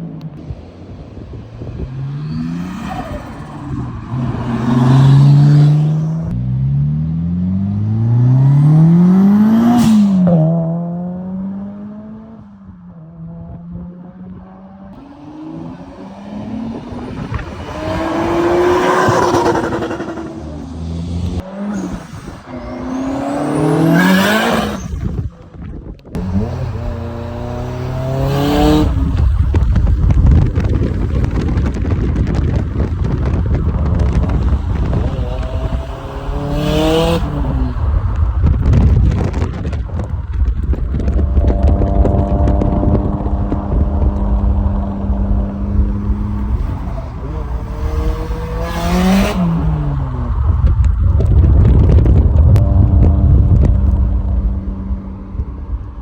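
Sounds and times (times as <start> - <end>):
car engines accelerating hard: 0.0 - 56.0.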